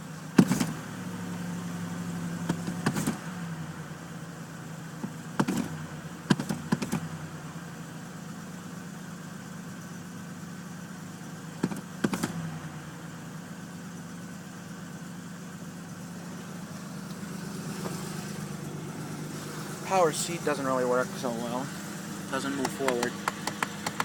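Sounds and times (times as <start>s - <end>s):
car engine idling: 0.0s - 24.0s
sharp engine knocks: 0.4s - 0.8s, 2.4s - 3.3s, 5.0s - 7.2s, 11.6s - 12.5s, 22.4s - 24.0s.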